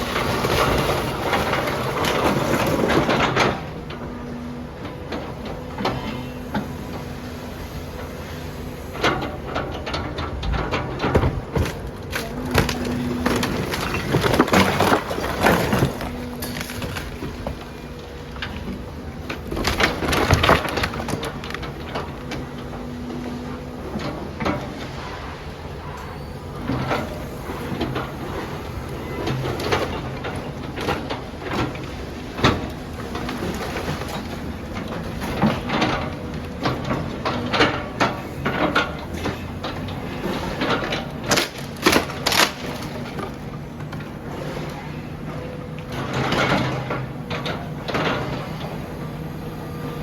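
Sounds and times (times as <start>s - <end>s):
demolition machine engine hum: 0.0s - 50.0s
material cracking and crunching: 41.3s - 42.6s.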